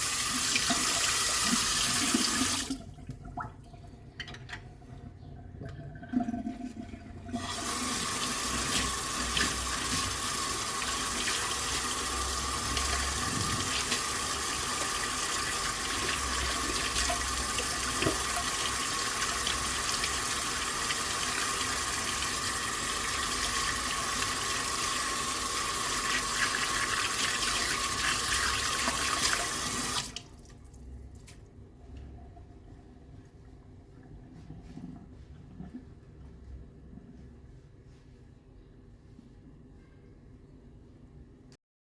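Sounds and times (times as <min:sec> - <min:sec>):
water running into sink: 0:00.0 - 0:04.8, 0:05.6 - 0:30.8.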